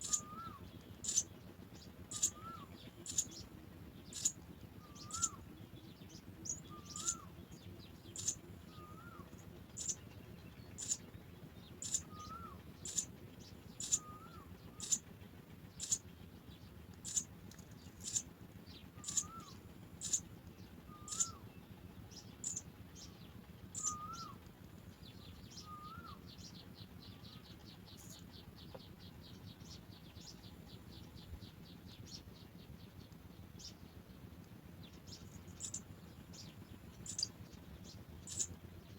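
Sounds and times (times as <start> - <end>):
sparrow chicks chirping: 0.0 - 38.9.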